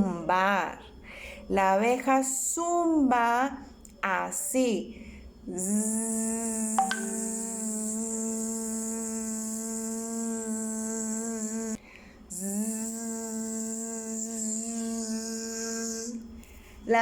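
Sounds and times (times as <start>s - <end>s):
woman imitating bee buzz: 5.5s - 16.2s.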